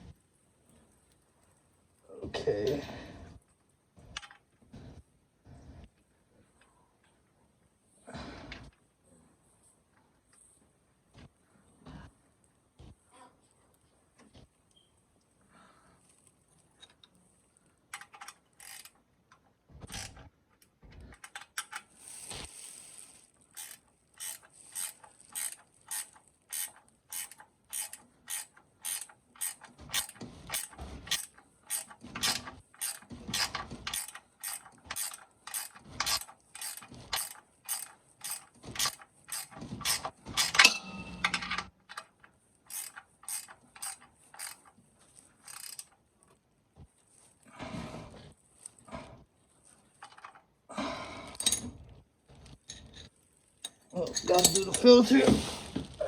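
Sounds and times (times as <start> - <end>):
ratchet wrench clicking: 18.0 - 19.0, 21.2 - 40.7, 42.7 - 44.6, 45.4 - 45.9
metal clatter: 40.4 - 41.7, 52.6 - 55.3.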